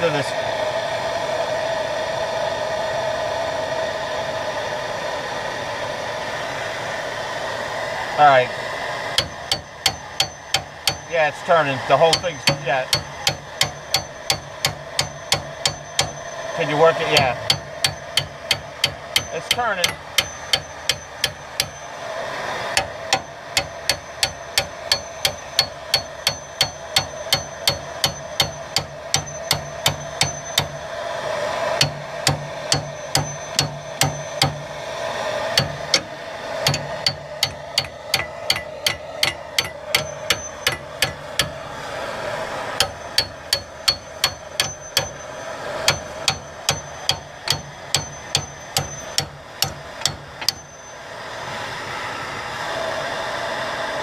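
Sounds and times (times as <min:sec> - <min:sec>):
hammer striking metal: 0:09.2 - 0:11.3, 0:11.9 - 0:21.9, 0:22.7 - 0:30.9, 0:31.7 - 0:34.8, 0:35.5 - 0:41.6, 0:42.7 - 0:50.9.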